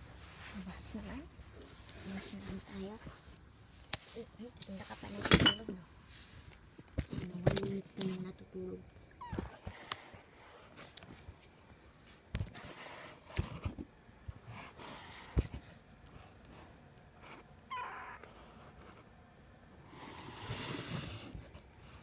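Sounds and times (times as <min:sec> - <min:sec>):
soft rustling: 0:00.0 - 0:08.2, 0:08.9 - 0:17.5
kitten mewing: 0:17.7 - 0:18.3.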